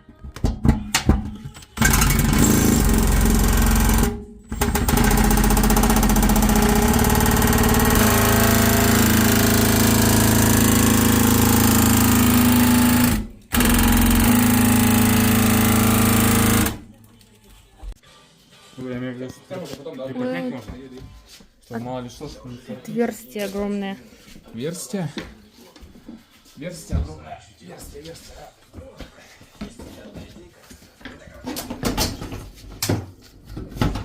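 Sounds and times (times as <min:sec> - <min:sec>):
electric power saw cutting boards: 0:01.8 - 0:16.8.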